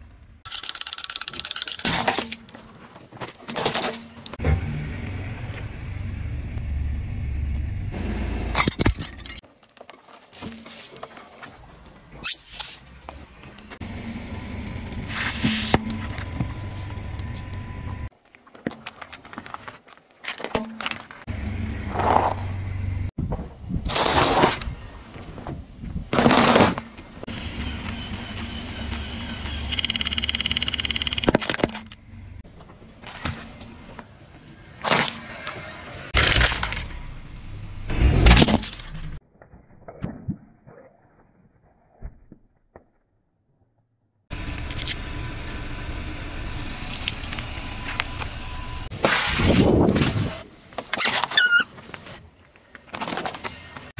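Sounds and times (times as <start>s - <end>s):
car engine and tyre rumble: 4.4s - 9.3s, 13.2s - 18.1s, 21.3s - 23.1s, 44.3s - 48.9s.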